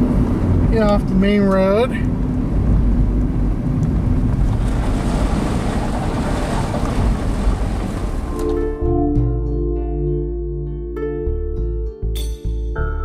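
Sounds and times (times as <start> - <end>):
car road and wind noise: 0.0 - 9.3
plucked harp-like music: 8.3 - 12.8.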